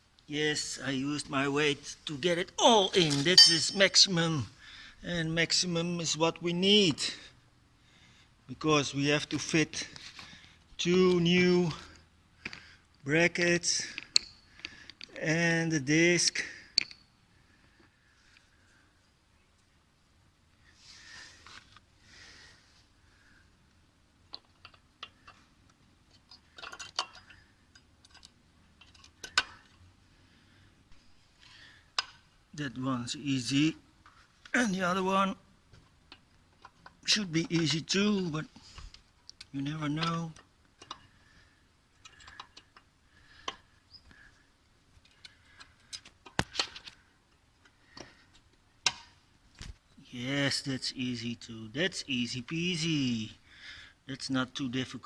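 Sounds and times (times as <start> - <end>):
small clicks of brake parts handled: 14.0 - 15.1, 16.7 - 17.0, 24.3 - 29.8, 38.9 - 41.2, 42.0 - 44.2, 45.0 - 49.8.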